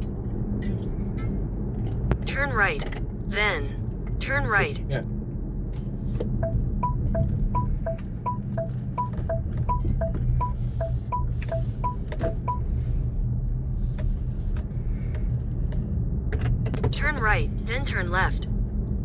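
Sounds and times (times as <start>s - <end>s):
low engine and road rumble: 0.0s - 19.0s
car turn signal ticking: 6.3s - 12.7s.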